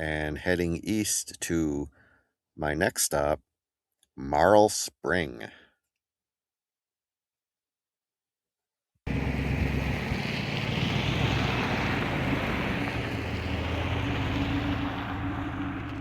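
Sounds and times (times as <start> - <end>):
truck engine and road noise: 9.1 - 16.0
wind buffeting microphone: 9.1 - 16.0.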